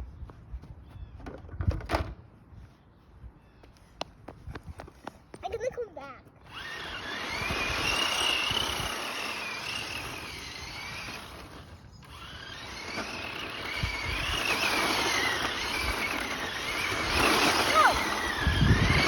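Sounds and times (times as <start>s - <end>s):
toy car motor whine: 6.4s - 19.0s
wheels rolling noise: 6.5s - 19.0s.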